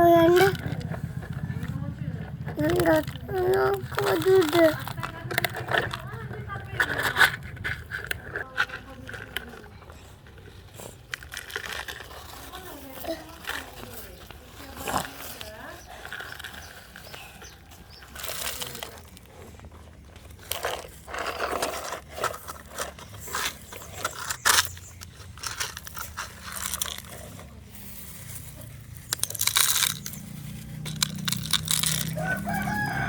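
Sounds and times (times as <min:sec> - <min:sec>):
toy excavator scraping soil: 0:00.0 - 0:33.0
rooster crowing: 0:32.0 - 0:33.0.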